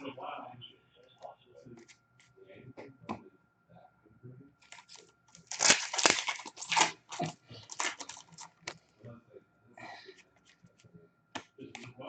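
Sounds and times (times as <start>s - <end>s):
wrapper crinkling and tearing: 4.6s - 8.7s.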